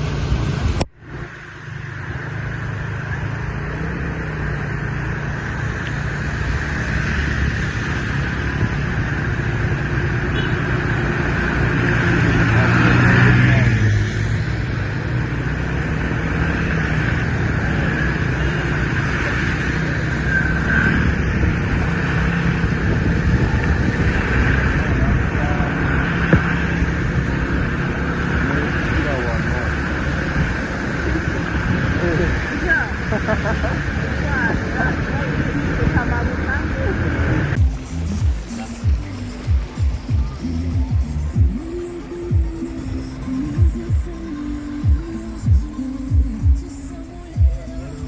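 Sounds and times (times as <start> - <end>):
road traffic noise: 0.0 - 48.0
vehicle passing close: 0.0 - 48.0.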